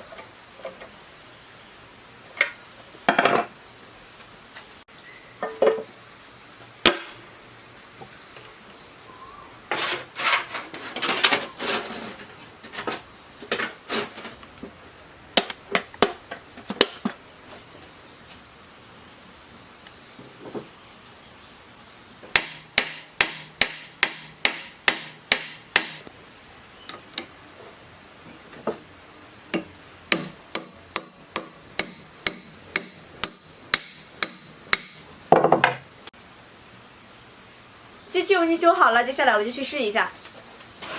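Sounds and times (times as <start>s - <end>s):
hammer strikes: 22.3s - 26.1s, 29.6s - 35.7s.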